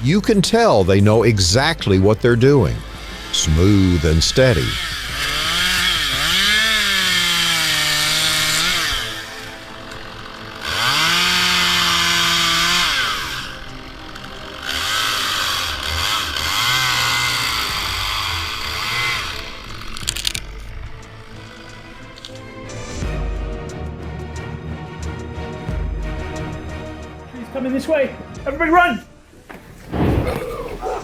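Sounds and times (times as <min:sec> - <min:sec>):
chainsaw cutting wood: 0:02.7 - 0:22.4.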